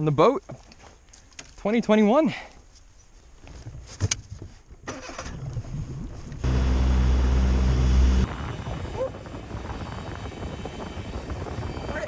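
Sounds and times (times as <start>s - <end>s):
rough wind or water noise: 5.0s - 12.0s
boat motor running: 6.4s - 12.0s.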